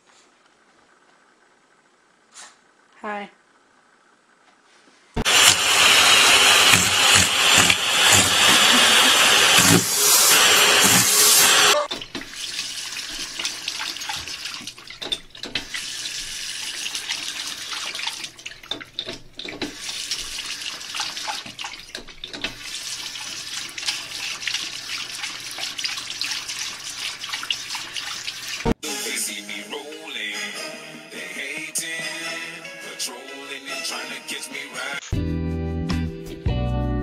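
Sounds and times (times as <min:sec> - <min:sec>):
tap water running into sink: 0:05.2 - 0:28.8
small clicks and splashes: 0:11.9 - 0:15.8, 0:17.0 - 0:20.0, 0:20.9 - 0:22.6.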